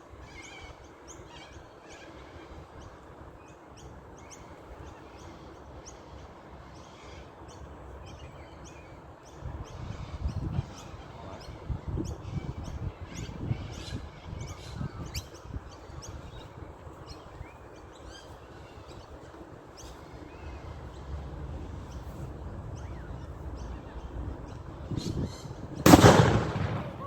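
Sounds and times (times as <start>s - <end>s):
birds chirping: 0.3s - 27.0s
low uneven rumble: 20.0s - 27.0s.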